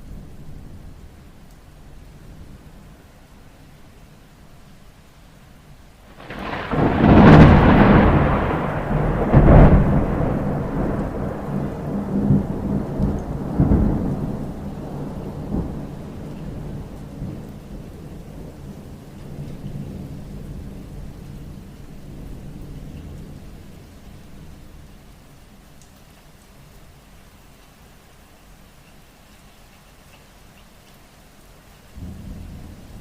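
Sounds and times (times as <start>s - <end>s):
steady rain: 0.0s - 33.0s
rolling thunder rumbles: 6.1s - 24.9s, 32.0s - 33.0s
thunder clap: 6.2s - 16.0s.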